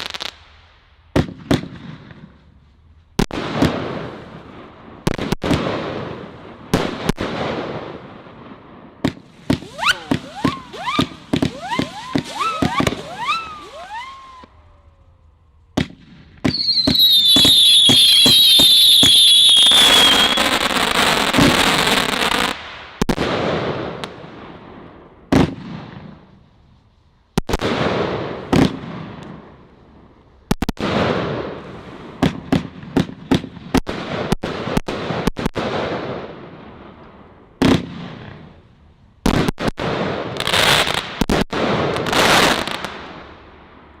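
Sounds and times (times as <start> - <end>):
firework shells bursting: 9.0 - 14.8, 15.7 - 20.7
firework crackle: 9.0 - 24.0, 39.2 - 43.5.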